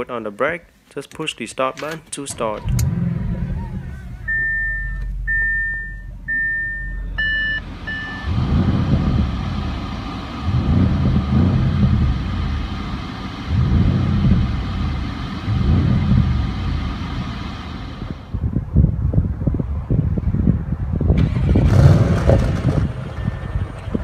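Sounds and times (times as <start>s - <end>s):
car engine revving: 2.3s - 18.4s, 21.2s - 24.0s
dashboard warning chime: 3.6s - 8.4s, 23.1s - 24.0s.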